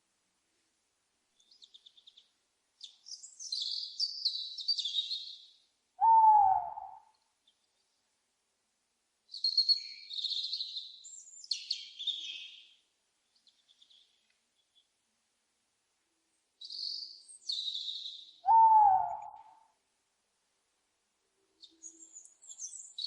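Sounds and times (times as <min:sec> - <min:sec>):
owl hoot: 0:06.0 - 0:07.1, 0:18.4 - 0:19.7
high-pitched bird calls: 0:16.7 - 0:19.5.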